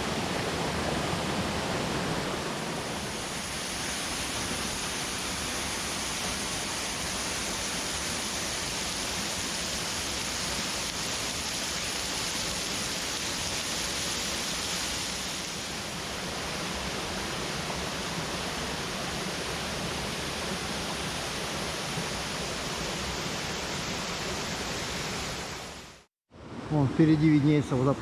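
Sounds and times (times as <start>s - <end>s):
waterfall rushing: 0.0s - 26.1s.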